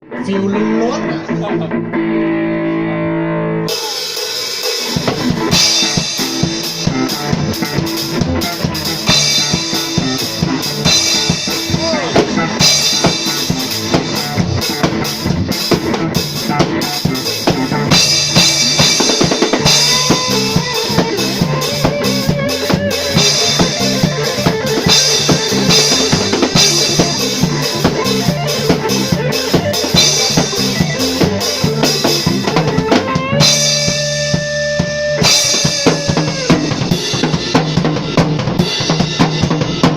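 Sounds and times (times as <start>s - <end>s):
bass line: 0.0s - 4.0s, 4.9s - 39.9s
drum kit playing: 3.6s - 39.9s.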